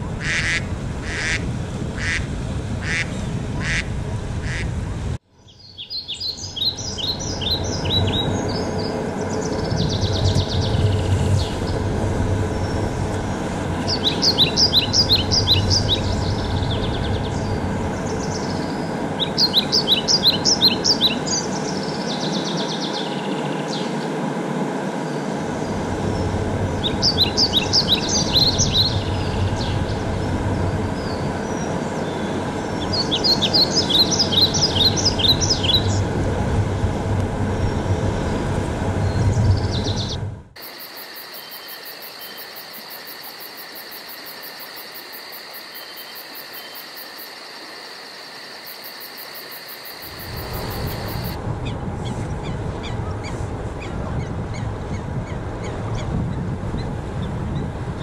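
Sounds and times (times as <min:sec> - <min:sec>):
low outdoor rumble: 0:00.0 - 0:40.6, 0:50.0 - 0:58.0
songbird singing: 0:05.3 - 0:24.2, 0:24.9 - 0:36.2, 0:39.0 - 0:51.4.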